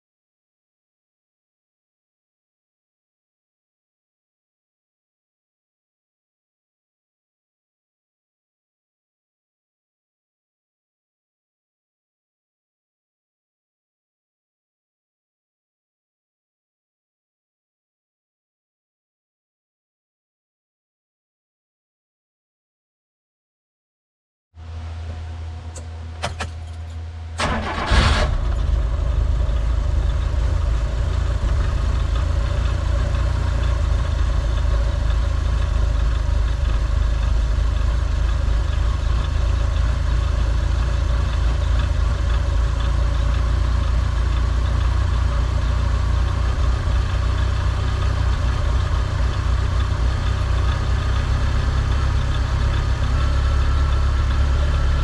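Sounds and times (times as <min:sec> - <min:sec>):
engine starter clicks: 0:25.7 - 0:28.8
engine starting and idling: 0:25.7 - 0:55.0.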